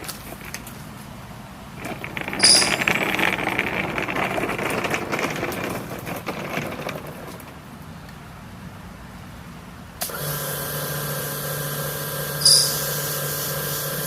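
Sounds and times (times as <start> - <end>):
pressure washer spraying: 10.0 - 14.0
pressure washer whine: 10.0 - 14.0.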